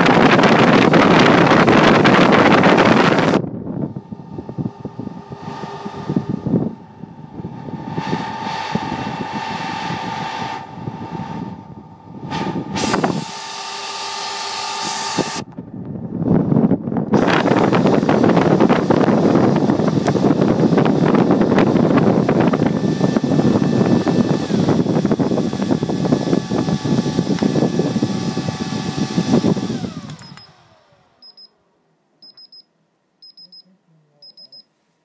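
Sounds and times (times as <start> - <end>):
high-speed fans whining: 0.0 - 31.7
short electronic beeps: 31.2 - 31.6, 32.2 - 34.7.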